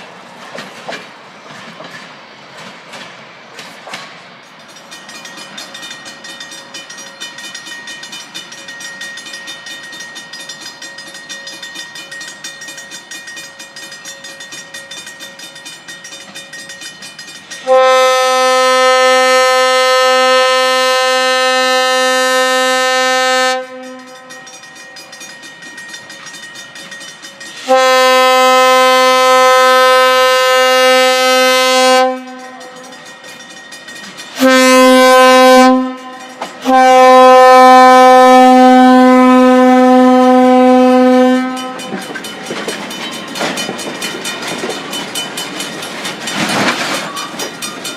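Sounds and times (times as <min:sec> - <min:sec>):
fluttering train running noise: 0:00.0 - 0:47.9
steam locomotive whistle blasts: 0:17.6 - 0:24.6, 0:27.6 - 0:33.0, 0:34.4 - 0:41.9.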